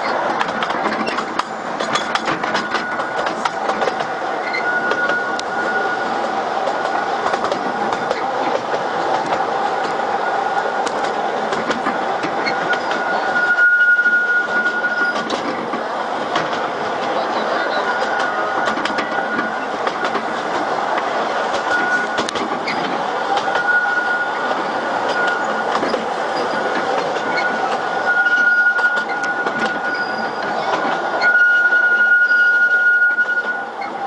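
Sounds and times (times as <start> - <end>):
clicking from track joints: 0.0 - 5.5, 10.8 - 13.1, 14.6 - 17.2, 18.0 - 23.7, 24.5 - 31.0
wheel and rail rumble: 0.0 - 34.0
thin wheel squeal: 4.4 - 6.2, 12.4 - 15.3, 27.3 - 30.6.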